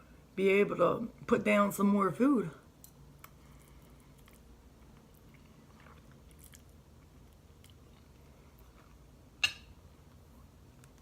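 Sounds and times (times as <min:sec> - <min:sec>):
person chewing food: 0:03.2 - 0:09.2.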